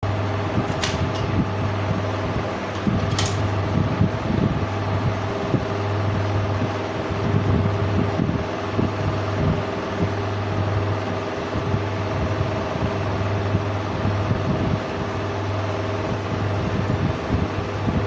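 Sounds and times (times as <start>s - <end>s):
cooling fan whirring: 0.0s - 18.0s
welding machine humming: 0.1s - 6.5s
sharp clicks or scrapes: 0.7s - 1.4s.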